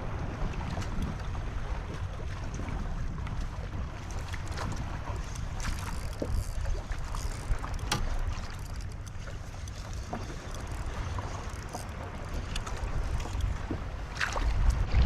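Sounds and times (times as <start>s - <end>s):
wind rumbling on microphone: 0.0s - 15.0s
light knocks and ticks: 5.2s - 13.8s.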